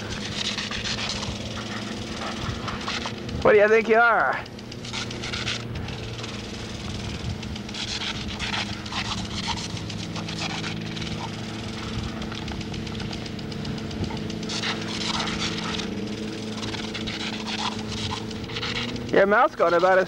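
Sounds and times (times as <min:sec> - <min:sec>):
puppy panting: 0:00.0 - 0:03.5, 0:07.0 - 0:20.0
sprinkler water hissing and splashing: 0:00.0 - 0:20.0
steady low hum: 0:00.0 - 0:20.0
puppy jaws snapping: 0:00.1 - 0:03.3, 0:07.4 - 0:19.0.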